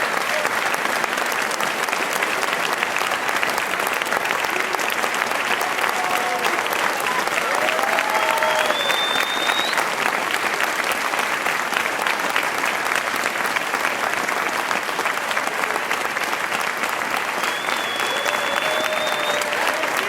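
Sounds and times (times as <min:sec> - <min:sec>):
audience clapping: 0:00.0 - 0:20.0
high whistle-like tone: 0:08.7 - 0:09.7.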